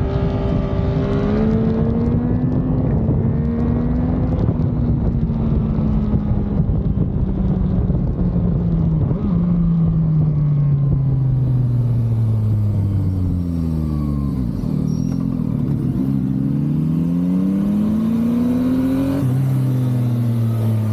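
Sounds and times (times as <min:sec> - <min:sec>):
motorcycle engine revving: 0:00.0 - 0:06.8, 0:08.6 - 0:20.9
wind rush: 0:00.0 - 0:14.7.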